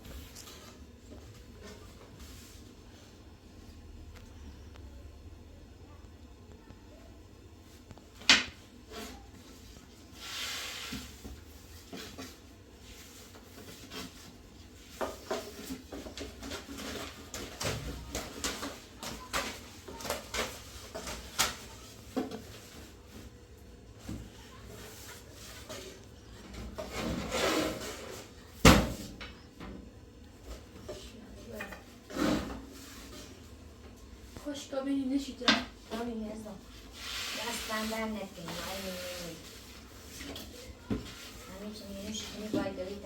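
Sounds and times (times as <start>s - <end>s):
rubbing or scraping: 26.6s - 28.4s, 36.8s - 43.0s.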